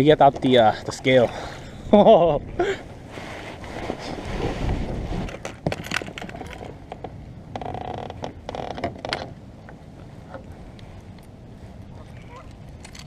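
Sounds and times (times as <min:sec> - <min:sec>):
fishing gear clicks and knocks: 0:05.2 - 0:09.4, 0:12.4 - 0:13.0.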